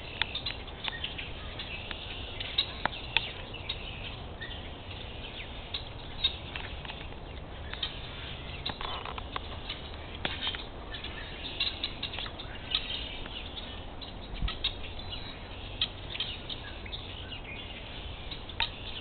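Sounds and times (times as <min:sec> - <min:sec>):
small birds chirping: 0:00.0 - 0:19.0
steady low rumble: 0:00.0 - 0:19.0.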